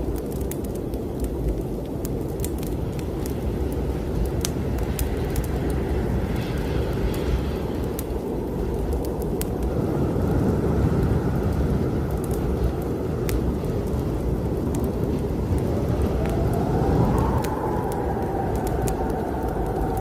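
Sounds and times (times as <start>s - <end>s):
blizzard wind rushing: 0.0s - 20.0s
fireplace fire crackling: 0.0s - 20.0s
whistling wind howl: 0.0s - 20.0s.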